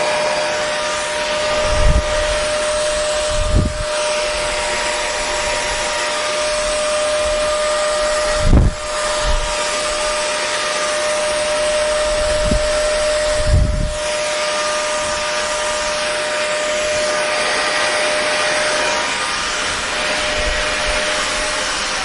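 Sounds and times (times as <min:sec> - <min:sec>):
hair dryer running: 0:00.0 - 0:22.0.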